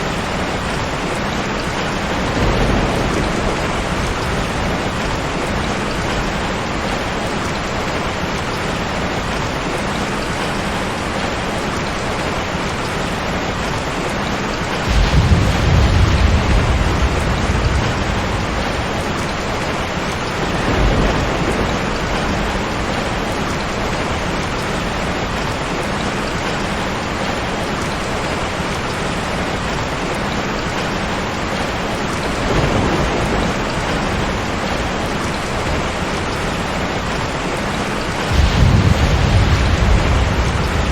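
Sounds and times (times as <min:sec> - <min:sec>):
thunder rumbling: 0:00.0 - 0:08.9, 0:14.8 - 0:29.3, 0:32.1 - 0:40.9
steady rain falling: 0:00.0 - 0:40.9.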